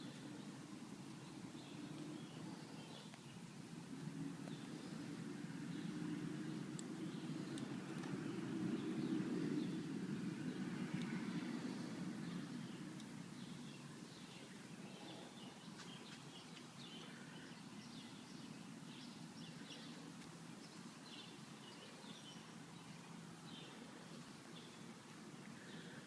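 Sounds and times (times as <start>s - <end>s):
birds chirping faintly: 0.0s - 26.0s.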